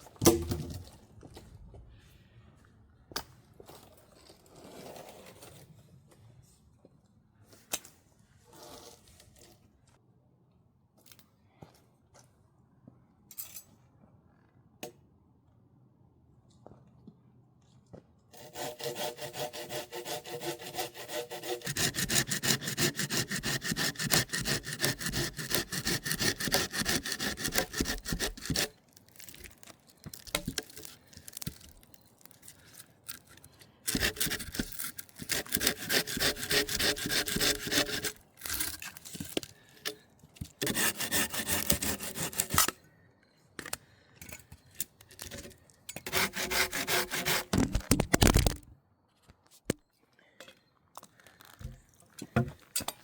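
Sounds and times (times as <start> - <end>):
hand saw cutting wood: 18.3 - 28.8, 33.9 - 39.3, 40.6 - 42.7, 46.0 - 48.6.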